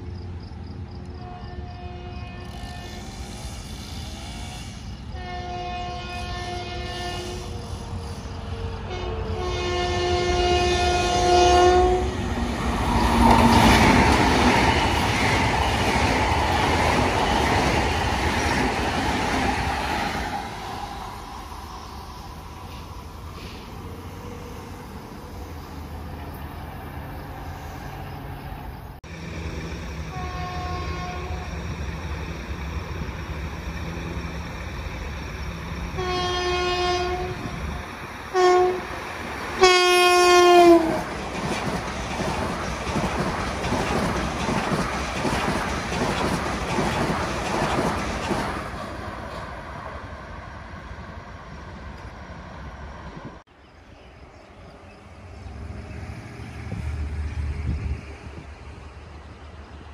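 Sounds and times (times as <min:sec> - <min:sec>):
rushing wheel and rail noise: 0:00.0 - 0:59.9
train rumbling: 0:00.0 - 0:59.9
train horn blasts: 0:01.1 - 0:12.2, 0:30.1 - 0:31.7, 0:35.9 - 0:37.7, 0:38.3 - 0:38.9, 0:39.6 - 0:41.0.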